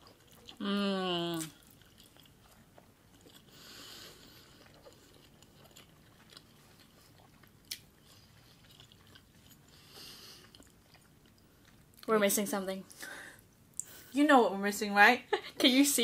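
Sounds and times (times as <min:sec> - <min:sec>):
chewing with wet mouth sounds: 0:00.0 - 0:12.1.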